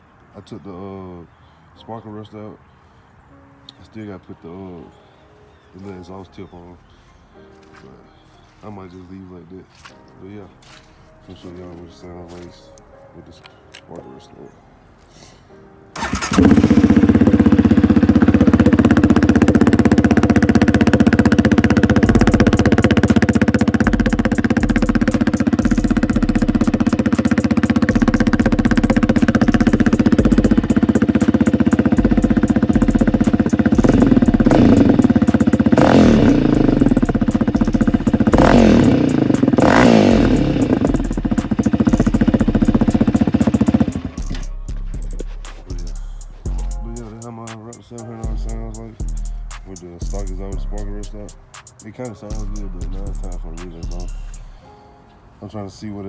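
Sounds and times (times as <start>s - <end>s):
quad engine starting and revving: 16.0s - 46.4s.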